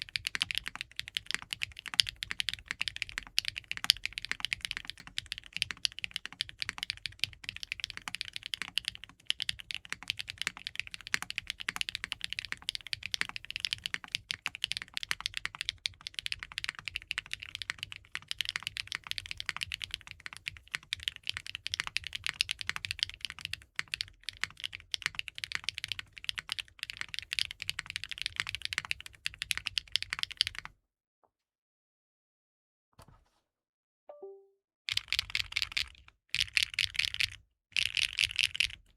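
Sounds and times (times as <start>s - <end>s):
fast mechanical keyboard typing: 0.0s - 30.7s, 34.9s - 38.9s.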